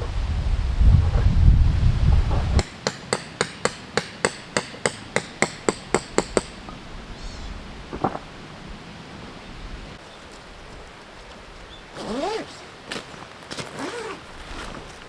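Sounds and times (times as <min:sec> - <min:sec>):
hammer striking metal tent peg: 0:02.6 - 0:06.6.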